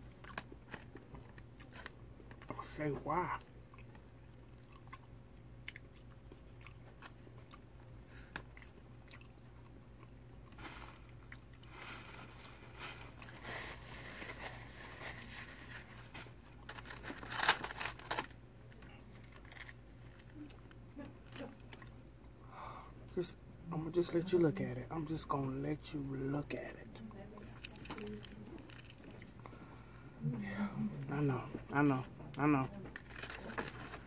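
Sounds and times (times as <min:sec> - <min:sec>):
crunching fried fish: 0:16.3 - 0:20.8, 0:27.5 - 0:29.4.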